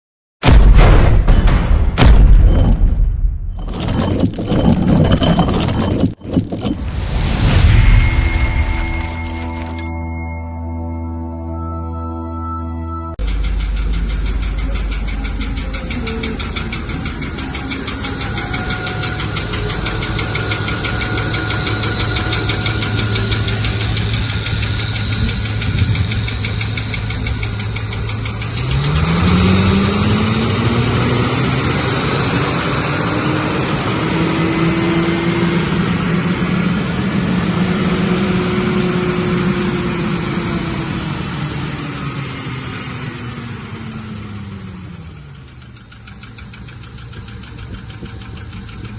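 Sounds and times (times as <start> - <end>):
engine idling and revving: 3.5 - 9.9, 13.2 - 48.9.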